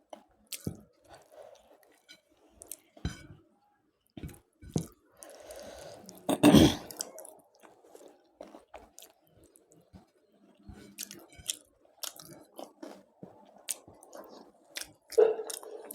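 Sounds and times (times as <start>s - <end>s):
person chewing food: 0.5s - 1.3s, 4.3s - 9.8s, 10.8s - 15.9s.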